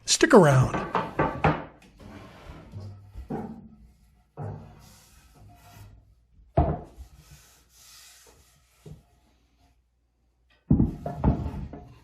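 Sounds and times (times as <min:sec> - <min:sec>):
wooden knock: 0:00.6 - 0:01.8.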